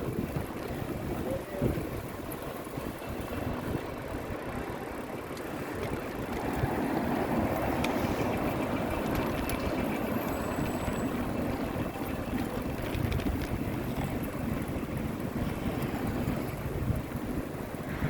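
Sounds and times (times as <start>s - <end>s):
bicycle road noise: 0.0s - 18.0s
wind on microphone: 6.4s - 18.0s.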